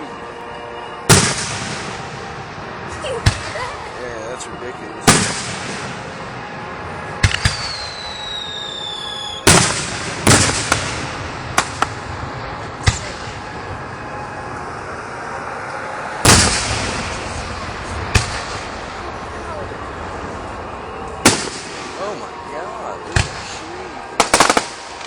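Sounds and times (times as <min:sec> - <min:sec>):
fireworks bangs: 0:01.1 - 0:04.0, 0:05.0 - 0:25.0
firework whistle falling in pitch: 0:07.1 - 0:12.0.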